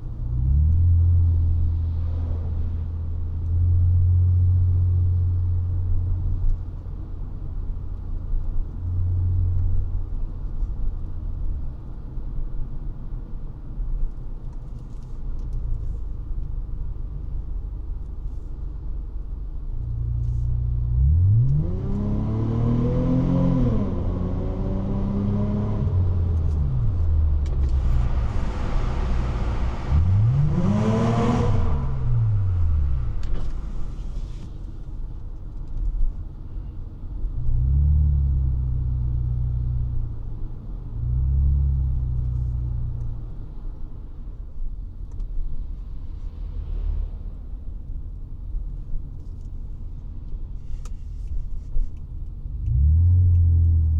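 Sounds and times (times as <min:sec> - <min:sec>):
car engine revving: 0:20.2 - 0:34.2, 0:52.5 - 0:53.9.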